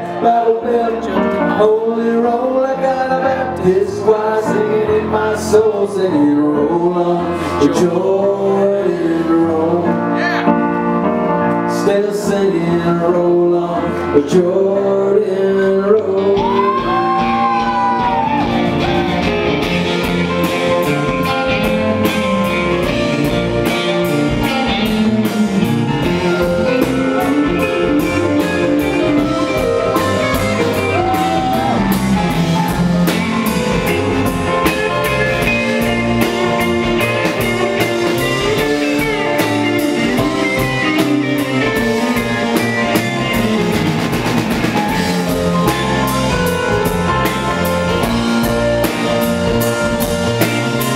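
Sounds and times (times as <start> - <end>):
bass guitar: 0.0 - 50.9
electric guitar lead: 15.8 - 50.9
drum kit beating: 16.0 - 50.9.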